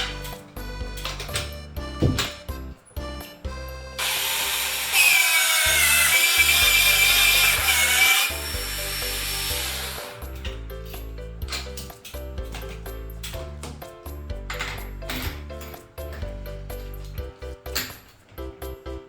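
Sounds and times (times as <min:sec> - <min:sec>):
background music: 0:00.0 - 0:19.0
power drill boring: 0:04.0 - 0:10.3.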